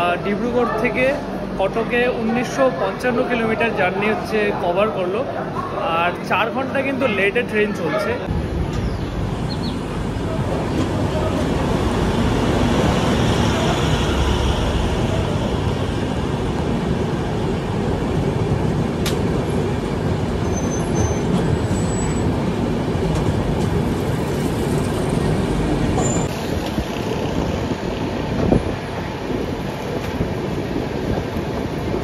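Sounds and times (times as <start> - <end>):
train wheels on rails: 9.8 - 32.0.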